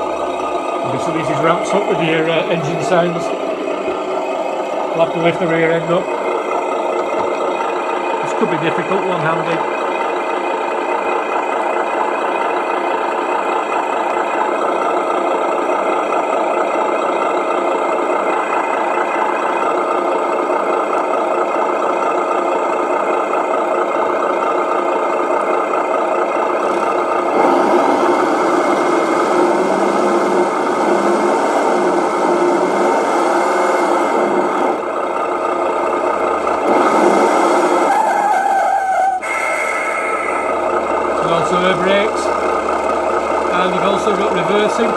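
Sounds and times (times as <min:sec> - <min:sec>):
simulated diesel truck engine: 0:00.0 - 0:44.9.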